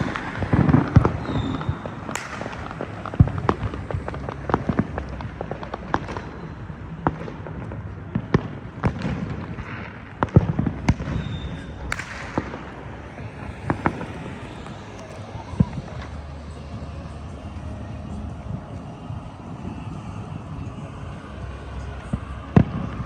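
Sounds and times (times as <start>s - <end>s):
fireworks popping and cracking: 0.0s - 19.0s
low rumble: 10.6s - 23.0s.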